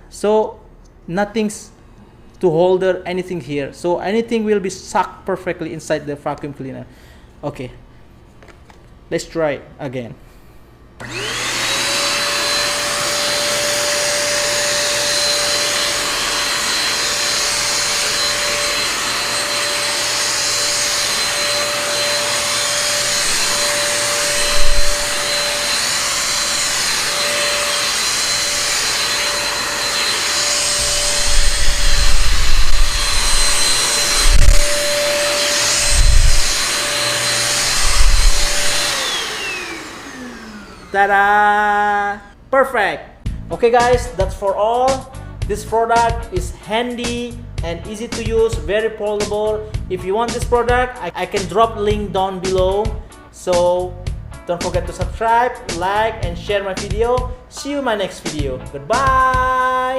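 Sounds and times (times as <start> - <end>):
stick vacuum cleaner whining: 11.0 - 42.3.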